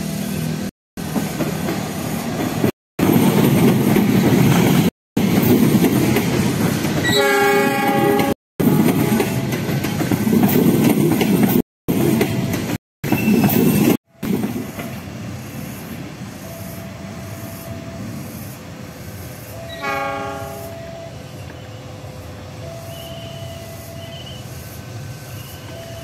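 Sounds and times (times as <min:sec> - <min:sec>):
train coaches rumbling past: 0:00.0 - 0:26.0
train horn blast: 0:07.0 - 0:09.4, 0:19.6 - 0:21.2.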